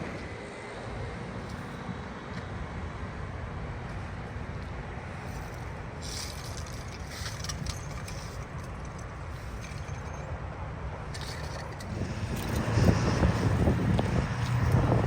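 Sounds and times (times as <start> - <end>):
low rumble of vehicles: 0.0 - 15.0
rattling clicks: 5.3 - 10.3, 11.1 - 13.0.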